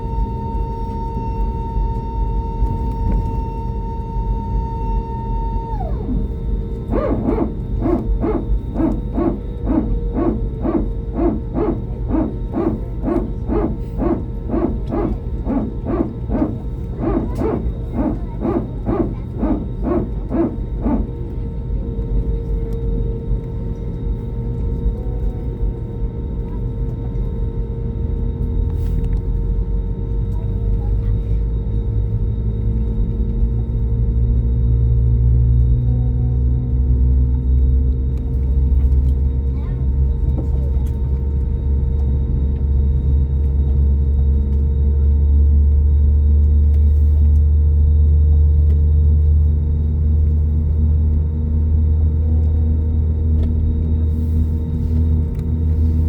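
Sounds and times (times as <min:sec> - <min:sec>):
jet engines rumbling: 0:00.0 - 0:22.8
steady whining tones: 0:00.0 - 0:25.6
jet engines rumbling in cabin: 0:00.0 - 0:56.0.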